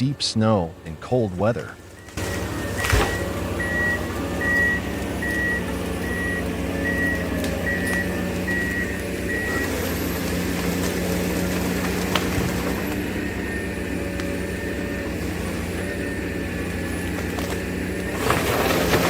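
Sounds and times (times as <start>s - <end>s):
diesel engine running: 0.0s - 19.0s
reversing alarm beeping: 1.9s - 10.1s.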